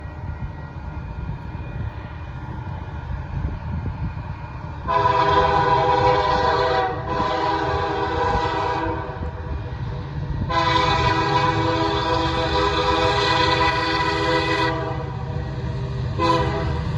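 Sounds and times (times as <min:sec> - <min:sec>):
passing train rumble: 0:00.0 - 0:16.9
train air horn chord: 0:04.9 - 0:09.2, 0:10.5 - 0:15.2, 0:16.2 - 0:16.9.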